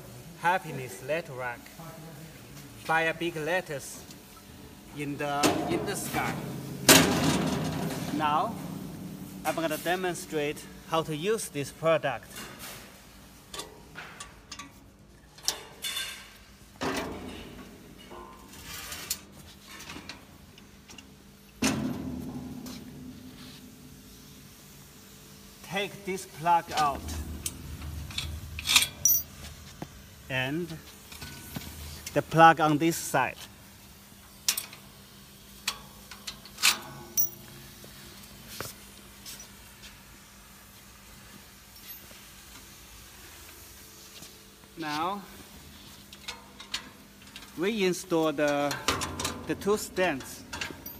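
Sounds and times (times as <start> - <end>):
clicks and knocks of rack parts: 13.5 - 23.1, 48.5 - 50.9.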